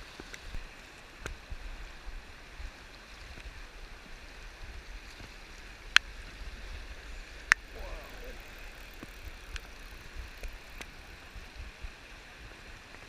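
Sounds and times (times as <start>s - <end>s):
river flowing: 0.0s - 13.0s.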